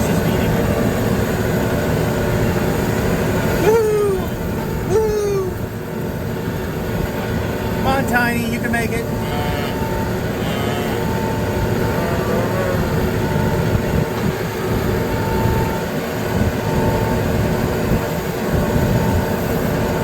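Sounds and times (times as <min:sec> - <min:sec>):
tractor engine running: 0:00.0 - 0:20.0
short repeating tone: 0:09.0 - 0:13.5.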